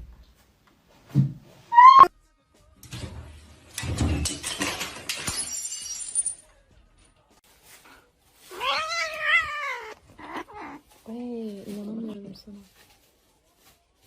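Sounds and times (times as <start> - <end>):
something breaking with clatter: 2.8 - 6.5.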